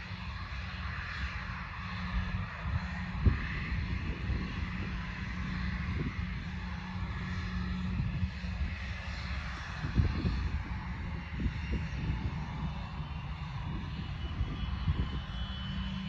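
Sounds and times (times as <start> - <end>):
aircraft engine running: 0.0 - 16.0
wind buffeting microphone: 1.2 - 16.0.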